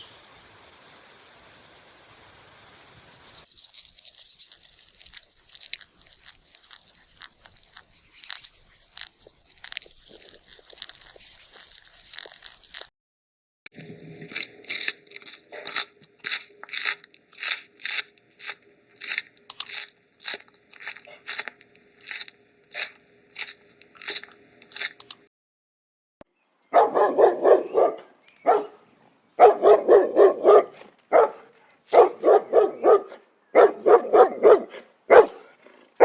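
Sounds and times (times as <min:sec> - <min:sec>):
animal chewing something crunchy: 0:03.4 - 0:12.9, 0:13.7 - 0:25.3, 0:26.8 - 0:36.0
dog barking: 0:26.7 - 0:36.0.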